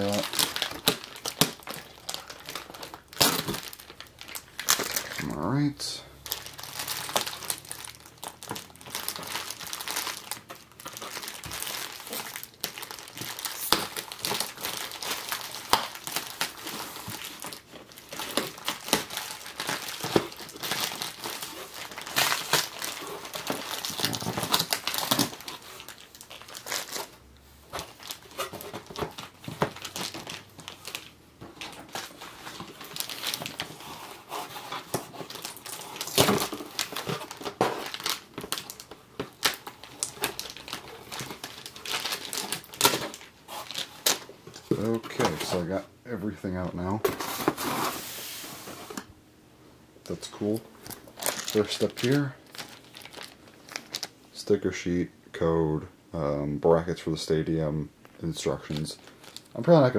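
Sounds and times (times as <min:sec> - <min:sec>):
plastic tearing: 0:00.0 - 0:05.4, 0:06.2 - 0:45.7, 0:50.1 - 0:54.2, 0:58.5 - 0:59.8
plastic packaging crinkling: 0:00.0 - 0:45.8, 0:50.1 - 0:54.5, 0:58.3 - 0:59.9.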